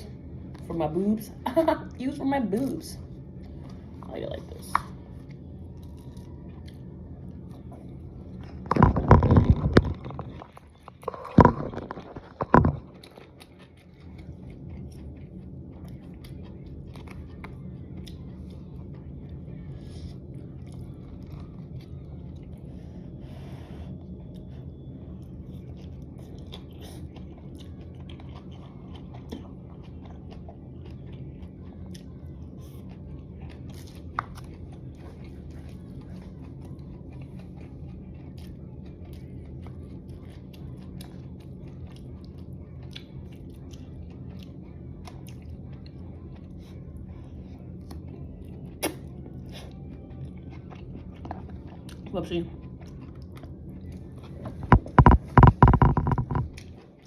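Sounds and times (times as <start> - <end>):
steady low hum: 0.0 - 57.0
close-up chewing and biting: 3.4 - 57.0.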